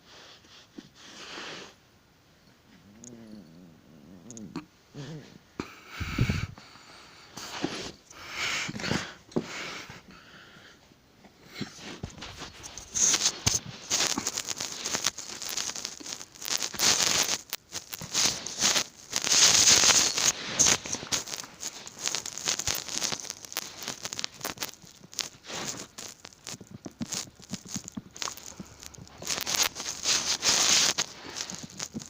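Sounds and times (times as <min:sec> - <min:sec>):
cat scratching and rustling: 0:11.7 - 0:32.0.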